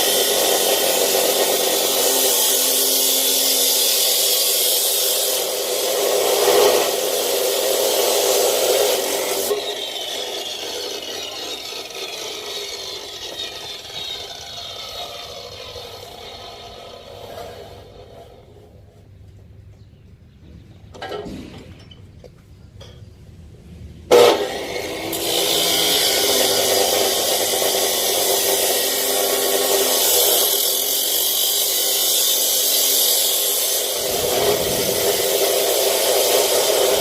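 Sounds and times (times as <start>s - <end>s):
power saw cutting steel: 0.0s - 18.6s, 24.1s - 37.0s
motor winding down whine: 33.8s - 37.0s.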